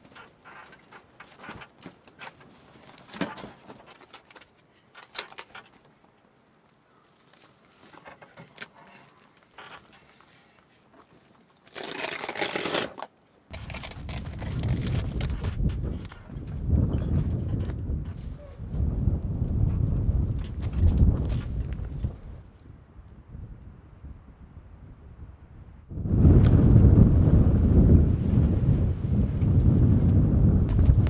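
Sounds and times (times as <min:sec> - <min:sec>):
crinkling and rustling handling: 0:00.0 - 0:16.6
wind buffeting microphone: 0:13.5 - 0:31.0.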